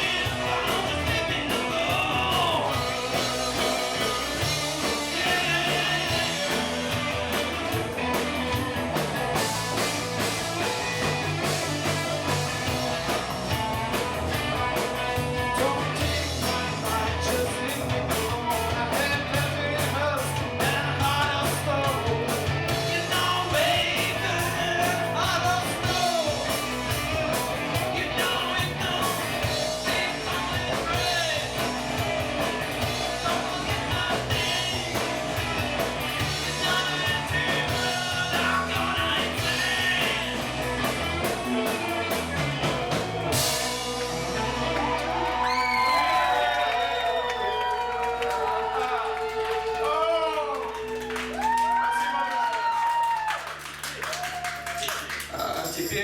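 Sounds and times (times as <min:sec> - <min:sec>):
live rock band playing: 0:00.0 - 0:46.6
person singing: 0:36.2 - 0:40.5.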